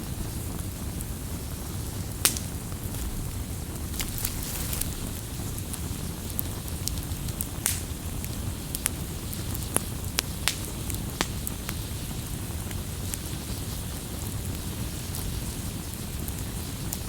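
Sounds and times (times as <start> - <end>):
low noise of flames: 0.0 - 17.0
wood crackling pops: 2.2 - 9.0.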